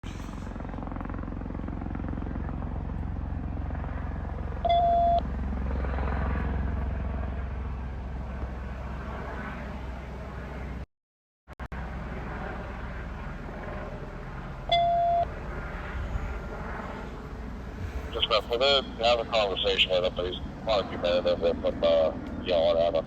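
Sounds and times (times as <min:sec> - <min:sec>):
helicopter rotor drone: 0:00.0 - 0:10.9, 0:11.7 - 0:23.0
short electronic beep: 0:04.7 - 0:05.2.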